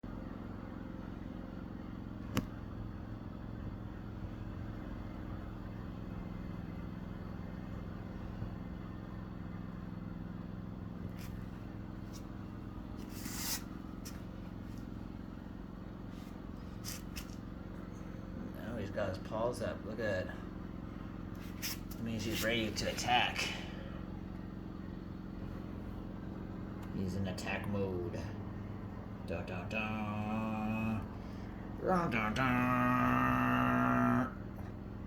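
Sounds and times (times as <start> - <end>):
low motor hum: 0.0 - 35.0
scraping rustles: 11.0 - 14.9, 16.1 - 17.5, 21.4 - 23.1.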